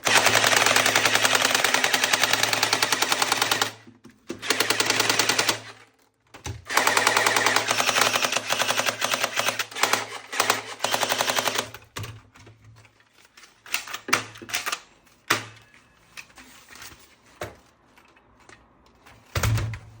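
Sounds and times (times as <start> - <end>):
toy gun firing rapid clicks: 0.0 - 3.8, 4.4 - 5.7, 6.7 - 11.8.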